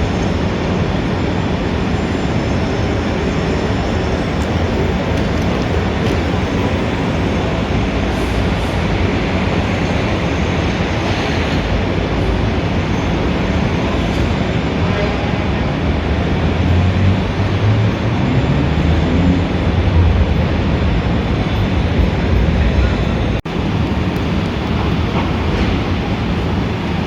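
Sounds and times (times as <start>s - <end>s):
city street traffic roar: 0.0s - 27.0s
deep engine rumble: 11.7s - 27.0s.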